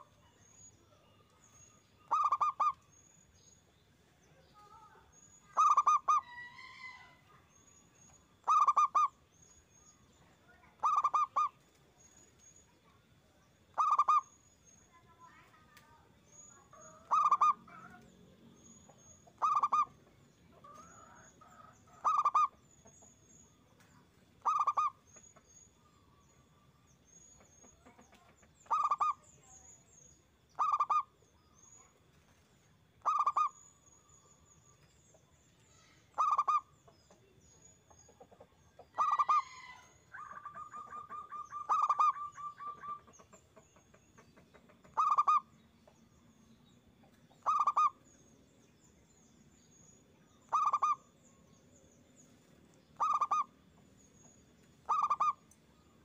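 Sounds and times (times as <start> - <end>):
dove cooing: 2.1 - 2.8, 5.6 - 6.3, 8.4 - 9.1, 10.8 - 11.5, 13.8 - 14.2, 16.9 - 18.0, 19.4 - 19.9, 22.0 - 22.5, 24.4 - 24.9, 28.7 - 29.2, 30.6 - 31.0, 33.0 - 33.5, 36.2 - 36.6, 39.0 - 39.5, 40.2 - 43.1, 44.9 - 45.4, 47.4 - 47.9, 50.5 - 51.0, 53.0 - 53.5, 54.8 - 55.4.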